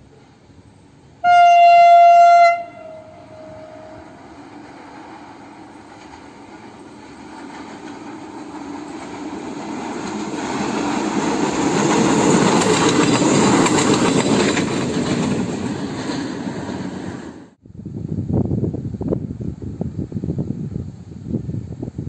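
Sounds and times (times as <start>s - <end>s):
diesel railcar engine: 0.0s - 17.6s
wheels clicking over rail joints: 3.6s - 17.4s.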